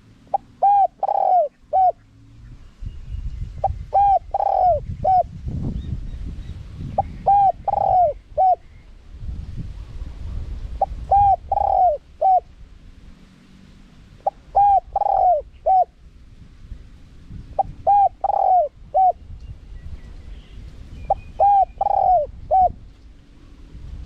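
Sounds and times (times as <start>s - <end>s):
dove cooing: 0.0s - 2.1s, 3.6s - 5.3s, 7.0s - 8.7s, 10.8s - 12.5s, 14.2s - 16.0s, 17.6s - 19.2s, 21.1s - 22.8s.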